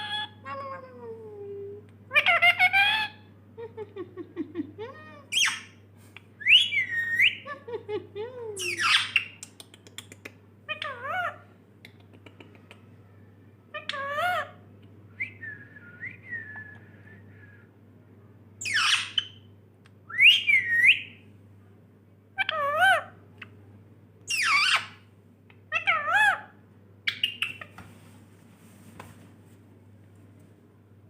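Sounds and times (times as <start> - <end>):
parrot squawking: 2.1 - 3.3, 5.0 - 5.8, 6.4 - 7.5, 8.6 - 9.4, 18.6 - 19.4, 24.3 - 25.0, 25.7 - 26.5
parrot whistling: 6.4 - 7.4, 20.1 - 21.2.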